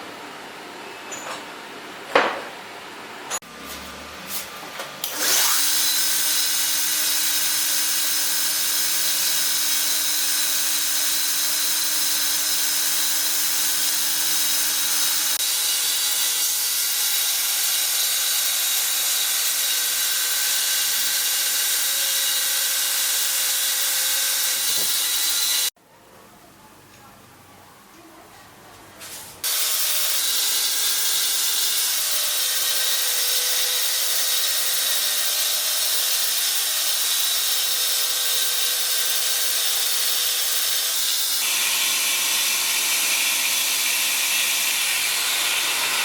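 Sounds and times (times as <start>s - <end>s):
sharp knocks: 2.1s - 2.6s
belt grinder whining: 5.0s - 25.7s, 29.4s - 46.0s.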